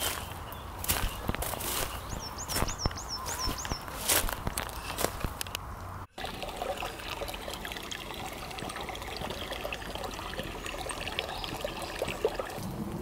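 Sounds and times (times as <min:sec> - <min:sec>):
stream babbling over pebbles: 0:06.1 - 0:13.0.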